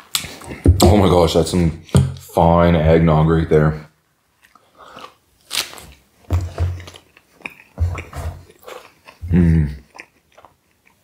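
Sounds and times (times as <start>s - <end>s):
chewing and mouth sounds: 4.3s - 5.7s, 6.8s - 11.0s.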